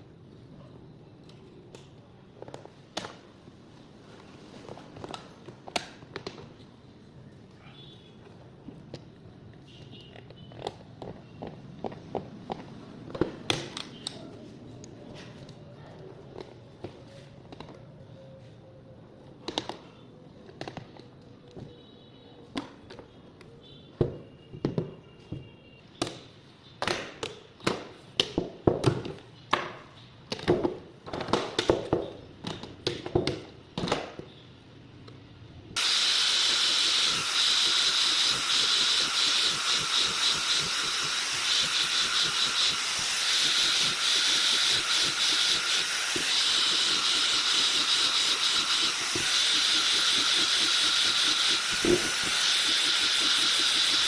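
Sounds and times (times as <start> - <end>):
power tool hissing whir: 35.8 - 54.0.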